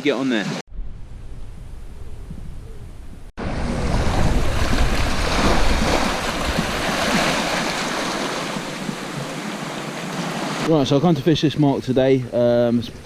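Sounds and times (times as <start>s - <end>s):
wind on microphone: 0.7s - 9.5s
sea surf washing on shore: 3.4s - 10.9s.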